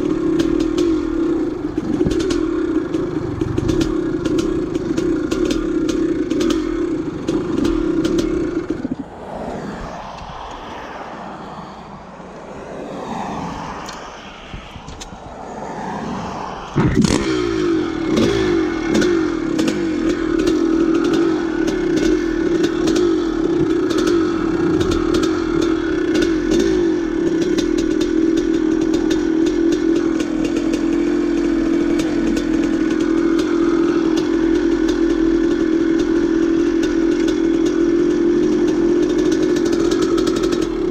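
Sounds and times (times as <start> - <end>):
dirt bike engine running: 0.0 - 9.0, 16.8 - 40.9.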